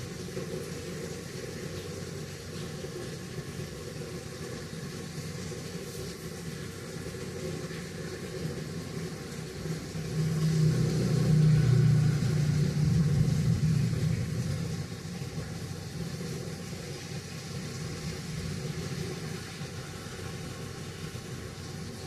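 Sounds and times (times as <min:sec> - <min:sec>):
steady hiss: 0:00.0 - 0:22.0
low rumble: 0:09.9 - 0:16.0.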